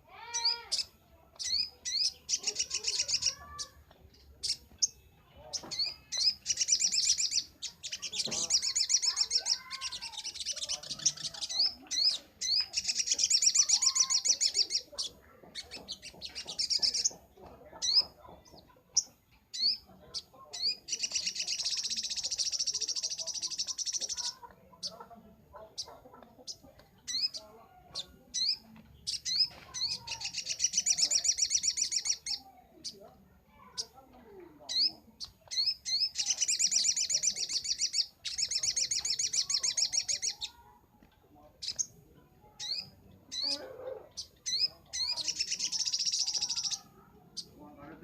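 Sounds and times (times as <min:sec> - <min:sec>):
bird singing high chirps and trill: 0:00.0 - 0:40.8, 0:41.5 - 0:47.8
bird singing high trills: 0:00.3 - 0:03.8, 0:44.2 - 0:47.5.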